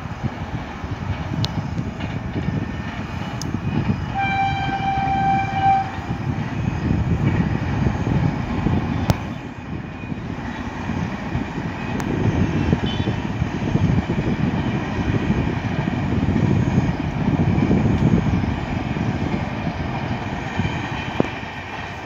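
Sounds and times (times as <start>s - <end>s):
distant train rumbling past: 0.0s - 22.0s
locomotive horn: 4.1s - 6.1s, 12.6s - 13.2s.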